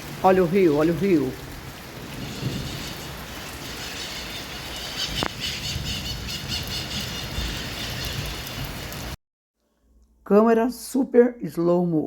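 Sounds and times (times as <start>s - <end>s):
squeaky bird calls: 2.3s - 8.6s.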